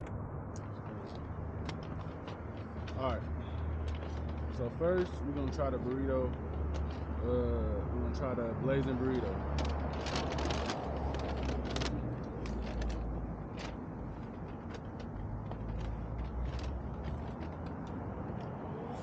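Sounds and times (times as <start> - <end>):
clicks and crackles: 9.4 - 18.6.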